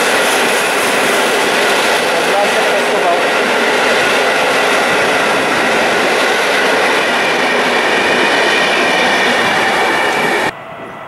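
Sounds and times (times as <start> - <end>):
train wheels rushing on rails: 0.0 - 11.0.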